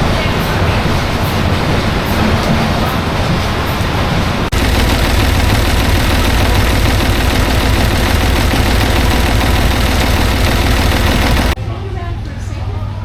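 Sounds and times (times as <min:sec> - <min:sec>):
engine running with low rumble: 0:04.5 - 0:11.6.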